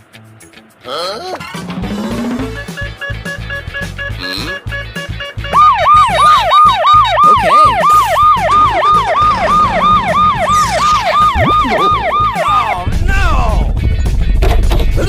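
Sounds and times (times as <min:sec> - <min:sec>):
background music beat: 0:00.0 - 0:15.0
emergency siren yelping: 0:05.5 - 0:12.9.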